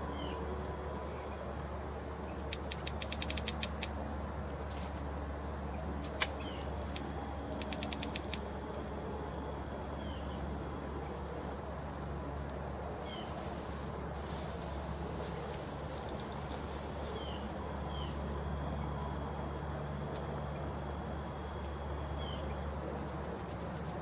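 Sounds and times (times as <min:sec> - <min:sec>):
dry clicking from tree: 0:01.6 - 0:05.1, 0:06.0 - 0:09.0, 0:12.5 - 0:20.4, 0:21.6 - 0:24.0.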